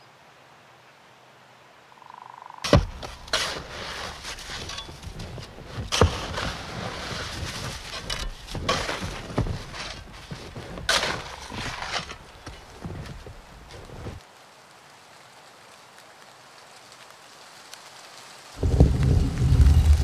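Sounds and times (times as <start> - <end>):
crunching and scraping: 2.6 - 14.2, 18.6 - 20.0
garden fork digging thuds: 2.7 - 14.2.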